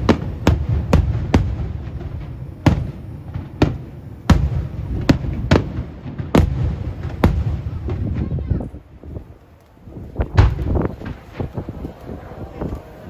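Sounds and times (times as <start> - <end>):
firework shells bursting: 9.6 - 12.2.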